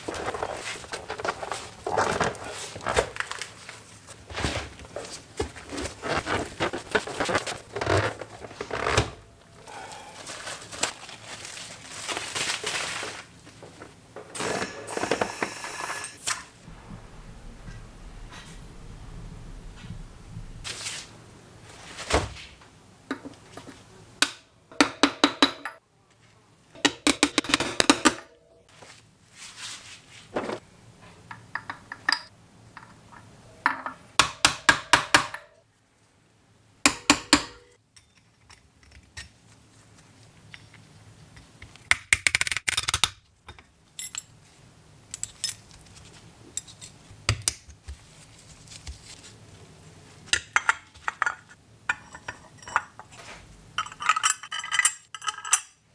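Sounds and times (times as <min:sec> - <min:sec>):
metal parts clinking and rattling: 0:53.8 - 0:55.8.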